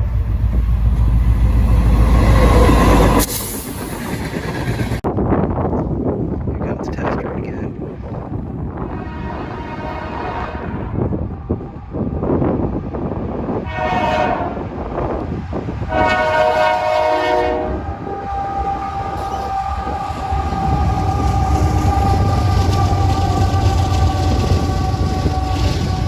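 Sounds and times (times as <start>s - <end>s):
train engine rumble: 0.0s - 26.0s
locomotive horn blasts: 8.8s - 11.1s, 13.6s - 14.7s, 15.9s - 26.0s.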